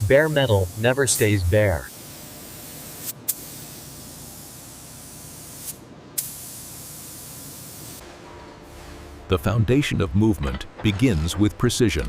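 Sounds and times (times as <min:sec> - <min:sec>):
paint spray gun hissing: 0:00.0 - 0:08.0.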